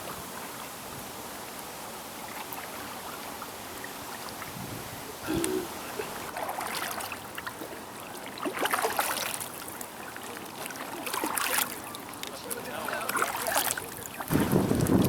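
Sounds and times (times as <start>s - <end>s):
paddle splashing in water: 2.2s - 15.0s.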